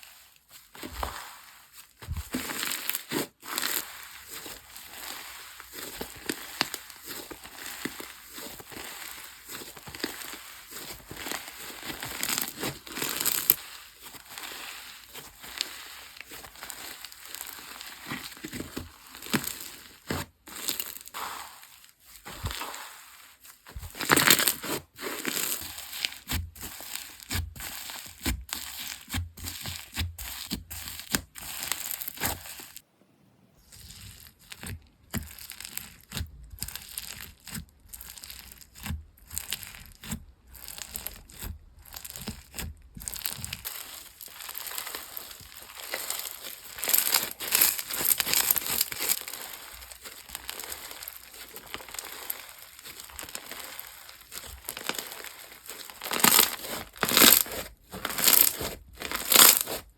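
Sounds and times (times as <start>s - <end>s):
slime squished by hand: 25.6s - 59.9s.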